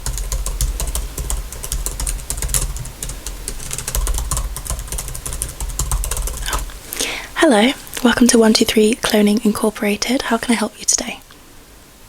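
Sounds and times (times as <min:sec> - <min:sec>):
fast typing on keyboard: 0:00.0 - 0:06.8.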